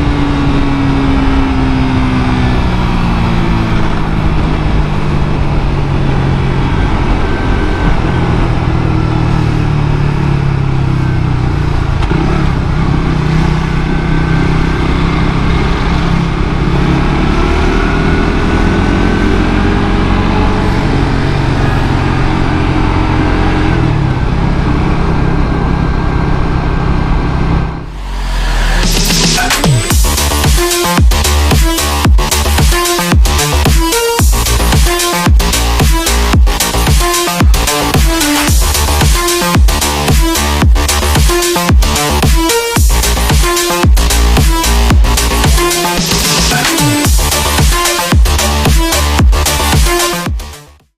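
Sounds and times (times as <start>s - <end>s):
wind noise: 0.0s - 10.9s
motorcycle engine revving: 0.0s - 50.9s.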